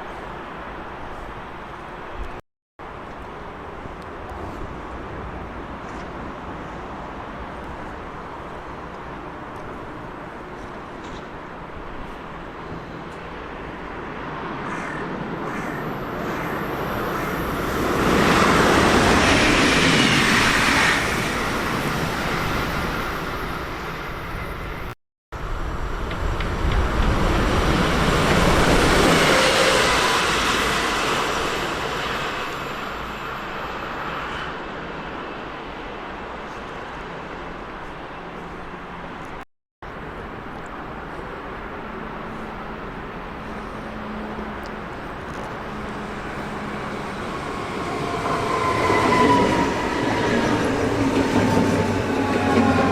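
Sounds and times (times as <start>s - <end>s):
train wheels rumbling on rail: 25.4s - 35.4s, 42.9s - 52.9s.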